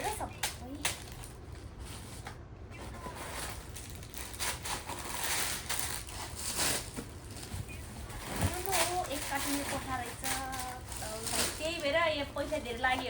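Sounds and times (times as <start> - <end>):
plastic packaging crinkling: 0.0 - 2.2, 2.9 - 13.0
short crackles: 2.8 - 13.0.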